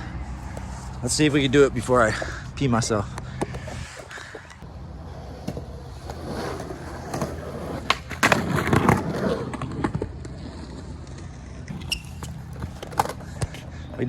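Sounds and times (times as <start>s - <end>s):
skateboard rolling on concrete: 0.0s - 14.0s
skateboard wheels landing: 5.3s - 10.3s.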